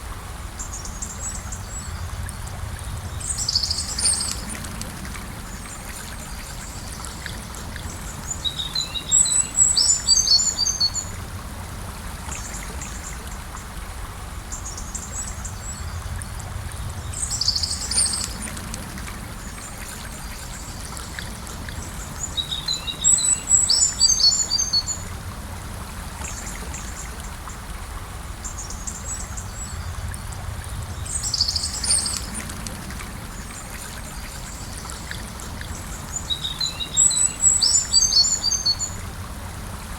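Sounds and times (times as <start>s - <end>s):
river water flowing: 0.0s - 39.9s
songbird chirping: 20.1s - 25.1s, 28.6s - 32.7s, 33.4s - 39.0s.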